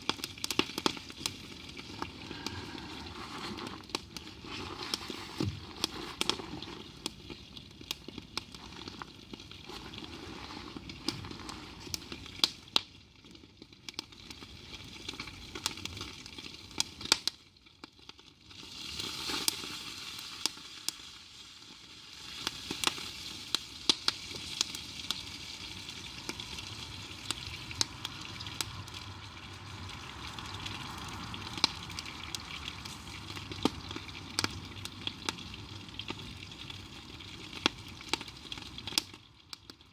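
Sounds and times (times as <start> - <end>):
burning wood popping: 0.0 - 17.4, 22.2 - 39.9
crackling campfire: 0.0 - 39.9
food sizzling in a pan: 18.4 - 39.6.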